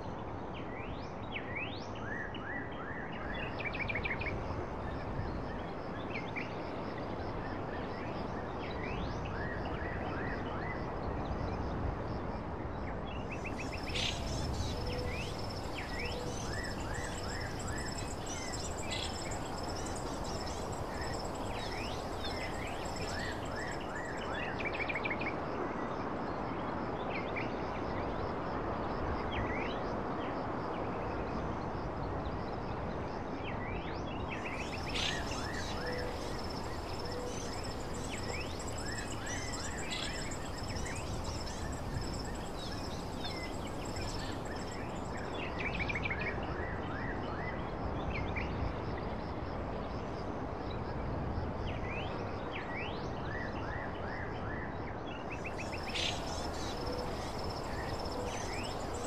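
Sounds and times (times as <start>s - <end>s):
background hiss: 13.3s - 24.8s, 34.4s - 45.5s, 55.4s - 59.0s
birds chirping: 13.4s - 24.3s, 34.5s - 45.0s, 55.6s - 59.0s.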